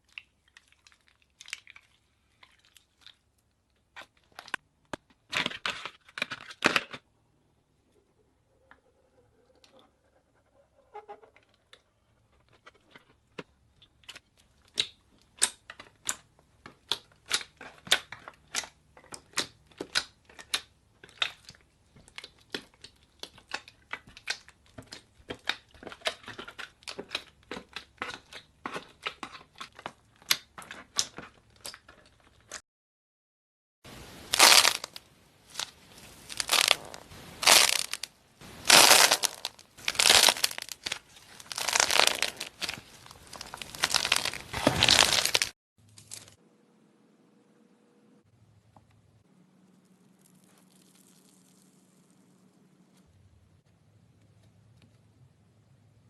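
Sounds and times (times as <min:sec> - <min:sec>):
slime crackling and popping: 0:33.9 - 0:45.5.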